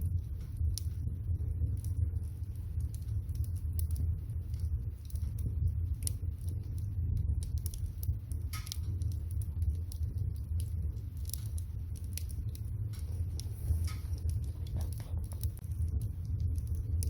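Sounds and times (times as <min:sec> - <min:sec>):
steady low rumble: 0:00.0 - 0:17.0
wood fire crackling and popping: 0:00.0 - 0:17.0.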